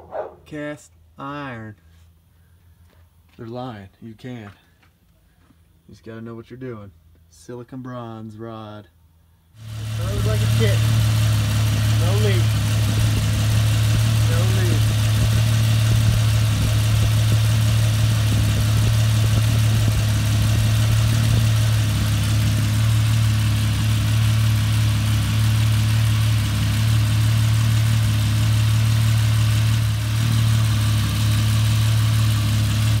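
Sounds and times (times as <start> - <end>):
car engine idling: 9.6 - 33.0.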